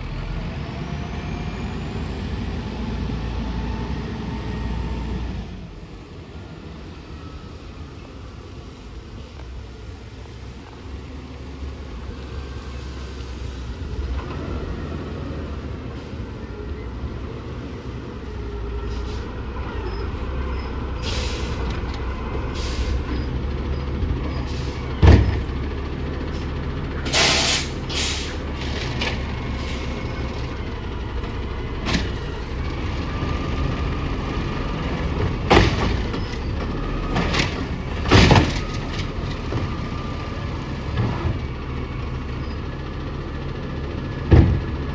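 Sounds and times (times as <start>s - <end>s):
diesel engine running: 0.0s - 44.9s
short air hisses: 21.0s - 21.6s, 27.1s - 28.4s
loud thump: 44.3s - 44.8s.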